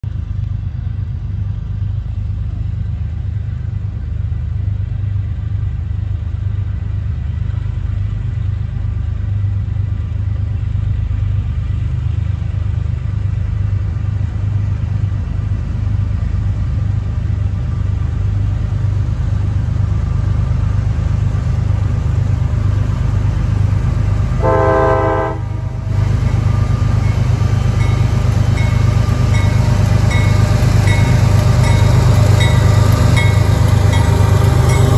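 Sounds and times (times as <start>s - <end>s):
diesel locomotive engine rumble: 0.0s - 34.9s
train horn blast: 24.4s - 25.9s.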